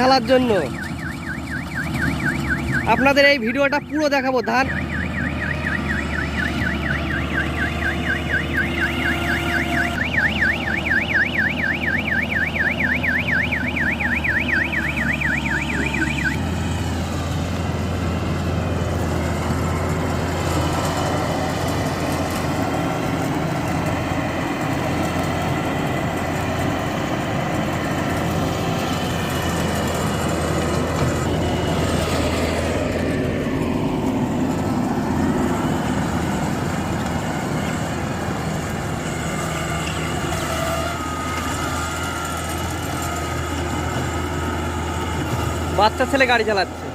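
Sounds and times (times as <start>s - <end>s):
combine harvester engine running: 0.0s - 46.9s
warbling electronic alarm: 0.3s - 16.5s.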